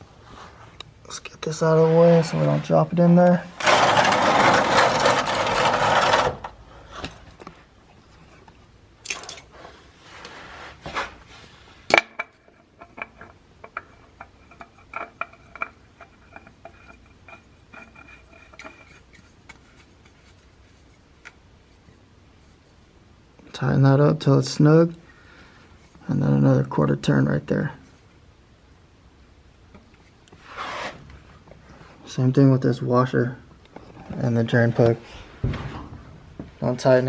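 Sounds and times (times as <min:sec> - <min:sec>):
tools clicking and scraping: 0:09.0 - 0:09.5, 0:11.9 - 0:20.2.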